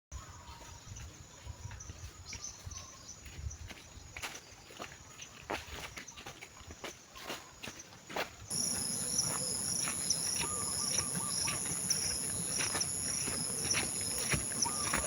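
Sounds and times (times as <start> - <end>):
forest insects chorus: 6.9 - 15.0.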